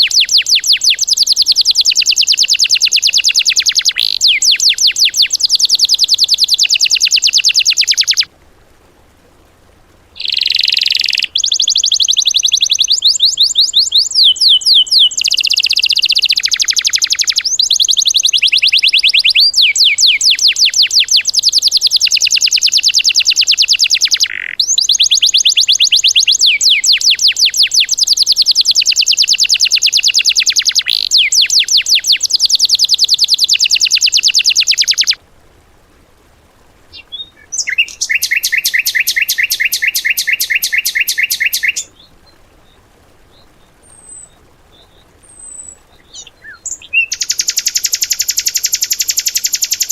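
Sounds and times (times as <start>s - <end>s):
songbird fast trills: 0.0s - 8.3s, 10.2s - 35.2s, 37.0s - 42.8s, 43.4s - 49.9s.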